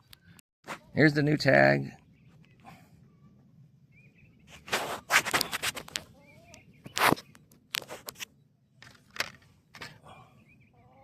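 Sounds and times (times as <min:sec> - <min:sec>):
faint poultry calls: 0:02.0 - 0:04.6, 0:05.9 - 0:07.4, 0:10.0 - 0:11.0
items rustling and knocking: 0:06.9 - 0:10.0.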